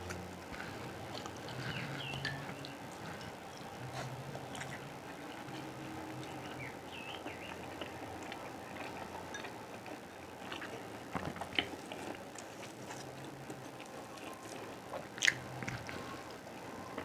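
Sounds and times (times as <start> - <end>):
person chewing and biting: 14.2 - 16.0.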